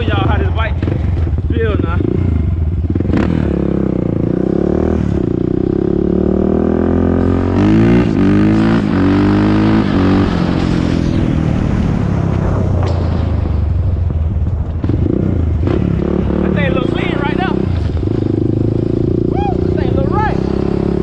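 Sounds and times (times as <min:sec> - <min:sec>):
engine revving: 0:00.0 - 0:13.4, 0:14.8 - 0:21.0.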